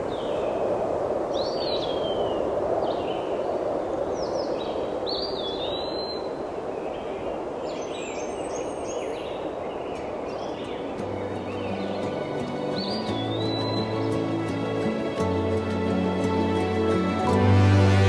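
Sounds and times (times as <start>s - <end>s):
forest ambience rushing: 0.0s - 18.0s
birds whistling calls: 10.0s - 17.2s.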